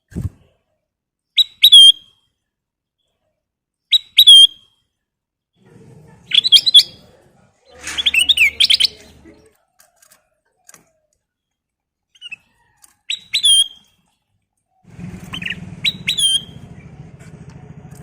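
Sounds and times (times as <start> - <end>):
bird singing whistled phrases: 1.4 - 2.1, 3.9 - 4.6, 8.0 - 9.0, 13.1 - 13.9, 15.3 - 16.6
bird chattering: 6.2 - 9.5, 15.3 - 16.6.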